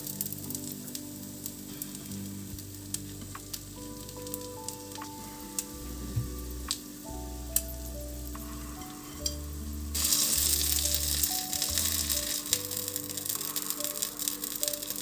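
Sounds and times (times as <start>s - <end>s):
food sizzling in pan: 0.0s - 15.0s
crackling pops: 10.0s - 15.0s.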